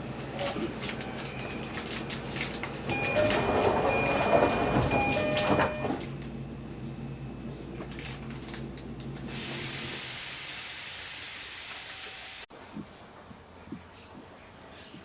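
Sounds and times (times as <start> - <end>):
equipment hum: 0.0 - 10.4.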